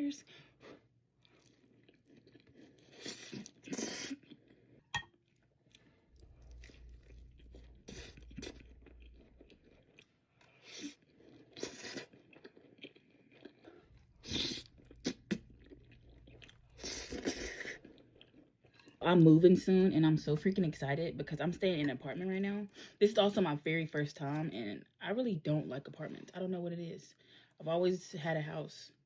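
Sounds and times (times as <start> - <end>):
crunchy bites and chewing: 5.3 - 18.9.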